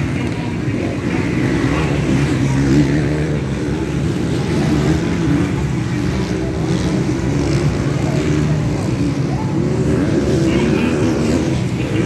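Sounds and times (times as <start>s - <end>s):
motorbike engines revving: 0.0s - 12.0s.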